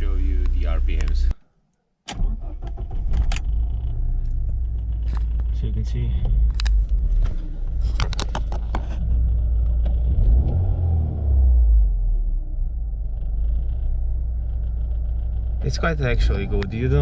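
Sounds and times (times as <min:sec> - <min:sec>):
car engine rumbling: 0:00.0 - 0:01.4, 0:02.1 - 0:17.0
sharp clicks or rattles: 0:07.9 - 0:08.8.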